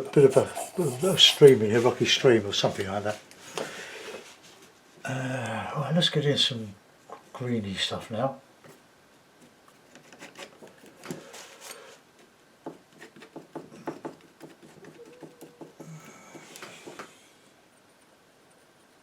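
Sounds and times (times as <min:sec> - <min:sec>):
palette knife scraping paint: 0:00.0 - 0:02.0.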